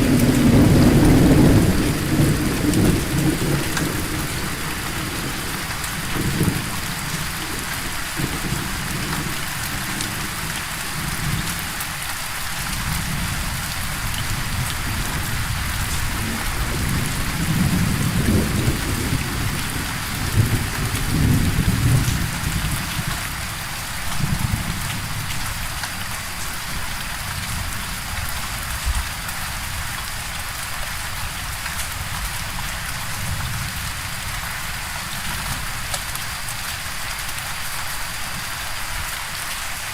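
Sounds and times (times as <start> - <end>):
low rolling thunder: 0.0 - 10.4, 12.9 - 23.0
heavy rain hissing: 0.0 - 39.9.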